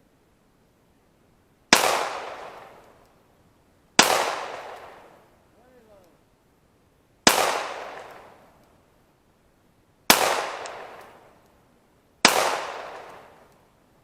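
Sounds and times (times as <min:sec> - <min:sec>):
pistol shots with echo: 0:01.7 - 0:02.8, 0:04.0 - 0:05.1, 0:07.3 - 0:08.4, 0:10.1 - 0:11.3, 0:12.2 - 0:13.5.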